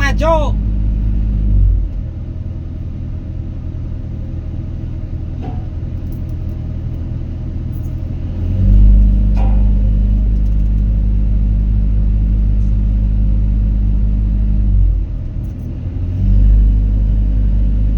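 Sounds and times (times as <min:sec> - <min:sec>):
diesel engine revving: 0:00.0 - 0:05.2, 0:07.8 - 0:17.9.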